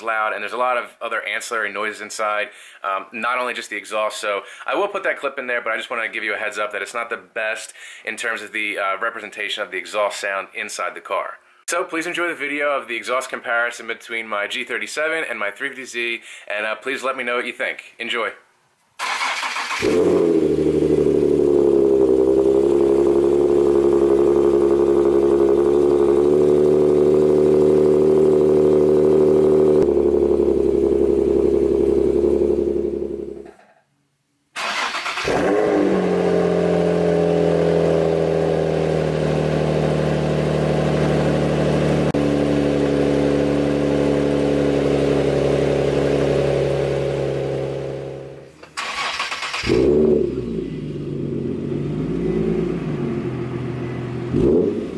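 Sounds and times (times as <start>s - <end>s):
car engine starting and idling: 19.0s - 33.5s, 34.6s - 54.9s.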